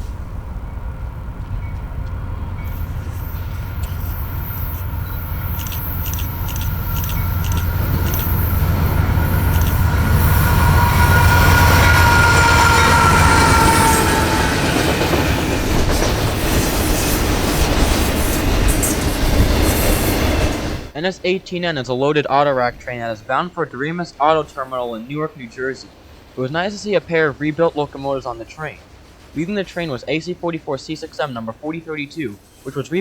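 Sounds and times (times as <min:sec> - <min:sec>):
diesel locomotive engine hum: 0:00.0 - 0:21.0
train wheels clicking over rail joints: 0:01.3 - 0:21.0
high ringing tone: 0:02.6 - 0:14.5.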